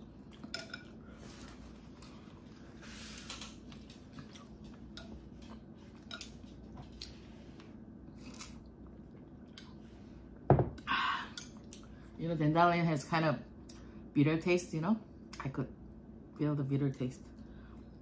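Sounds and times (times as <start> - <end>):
steady low hum: 0.0 - 18.0
person chewing noodles: 3.3 - 7.2.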